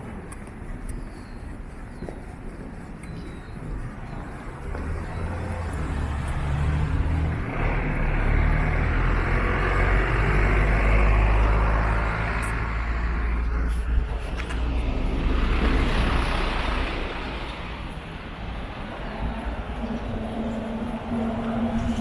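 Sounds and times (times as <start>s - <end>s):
vehicle passing by: 4.7s - 22.0s.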